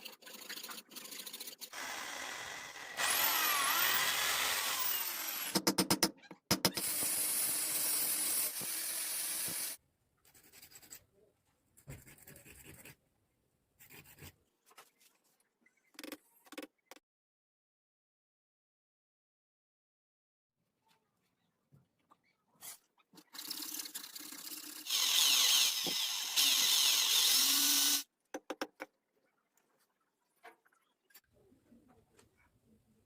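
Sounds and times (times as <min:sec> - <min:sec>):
power tool cutting bamboo: 0:01.7 - 0:05.6, 0:06.8 - 0:09.8, 0:24.8 - 0:28.1.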